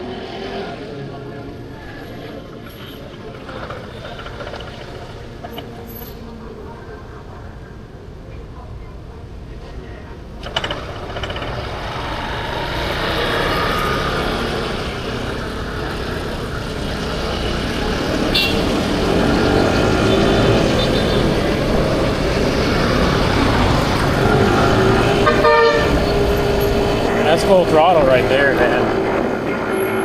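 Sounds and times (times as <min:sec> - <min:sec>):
scooter engine: 0:02.0 - 0:06.3, 0:10.4 - 0:30.0.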